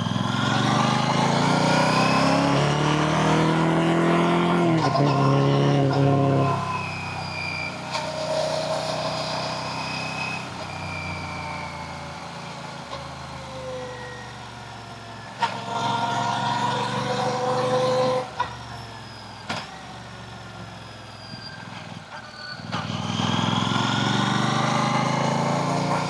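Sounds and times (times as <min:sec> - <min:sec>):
motorcycle engine running: 0:00.0 - 0:07.3.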